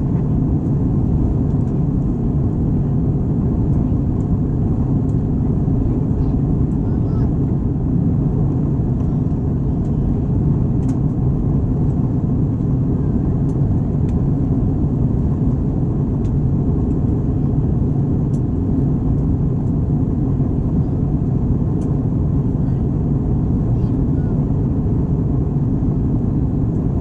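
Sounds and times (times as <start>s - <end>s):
airplane cabin rumble: 0.0s - 27.0s.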